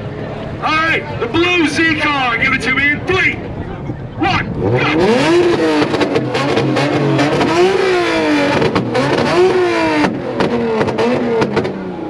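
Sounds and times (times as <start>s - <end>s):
car engine revving: 0.6s - 12.0s
exhaust pops and bangs: 5.4s - 7.8s, 8.4s - 11.8s.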